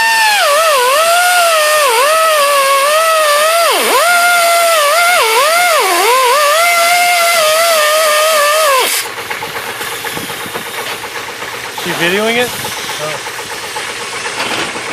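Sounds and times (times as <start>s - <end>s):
electric power tool whining: 0.0s - 14.9s.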